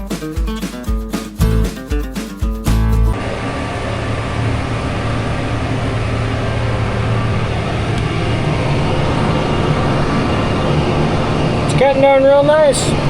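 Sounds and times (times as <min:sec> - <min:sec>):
mower-conditioner mechanical hash: 0:03.1 - 0:13.0
tractor diesel engine drone: 0:03.1 - 0:13.0.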